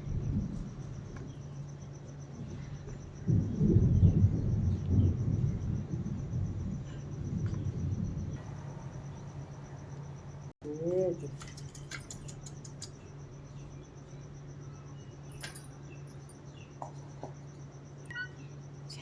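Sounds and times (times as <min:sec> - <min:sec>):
low rumble: 0:00.0 - 0:10.6
steady low hum: 0:00.0 - 0:19.0.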